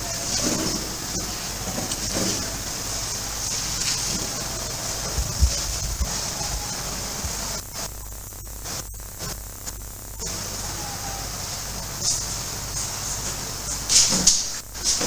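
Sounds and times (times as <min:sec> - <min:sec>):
low thumps: 0:00.0 - 0:07.8
steady hiss: 0:00.0 - 0:15.0.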